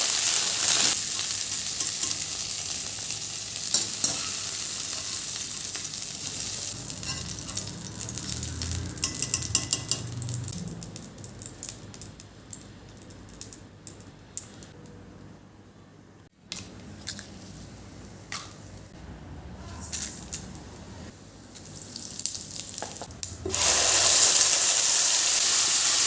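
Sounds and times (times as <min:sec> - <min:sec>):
food sizzling in a pan: 0:00.0 - 0:12.2, 0:21.3 - 0:26.0.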